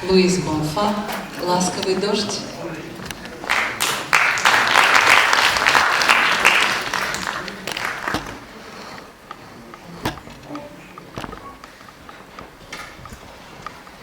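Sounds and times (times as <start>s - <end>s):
audience applauding: 3.4s - 8.6s.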